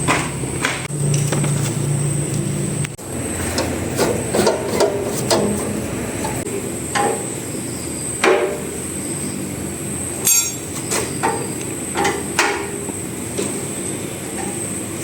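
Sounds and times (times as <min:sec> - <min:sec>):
steady mechanical noise: 0:00.0 - 0:15.0
sharp metal knocks: 0:10.2 - 0:12.8.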